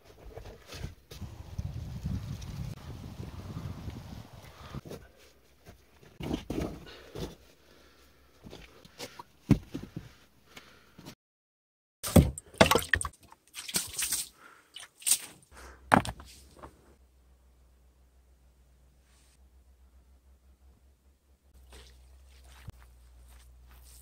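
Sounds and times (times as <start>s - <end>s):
knocks and clattering of building work: 4.8s - 7.5s, 8.4s - 10.2s, 15.9s - 16.8s.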